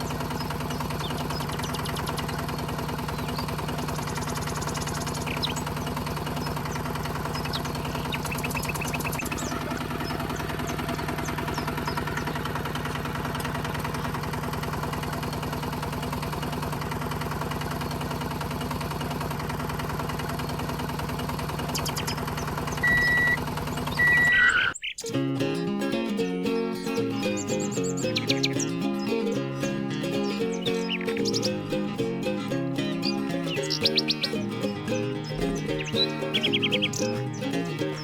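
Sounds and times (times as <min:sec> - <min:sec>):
small motor humming: 0:00.0 - 0:24.8, 0:27.4 - 0:38.0
short high-pitched beeps: 0:22.8 - 0:23.4.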